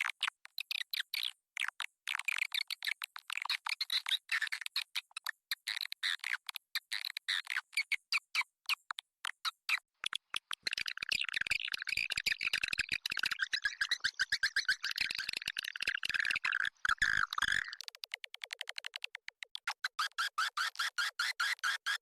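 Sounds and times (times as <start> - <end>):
swiftlet chirps and twittering: 10.7 - 17.9.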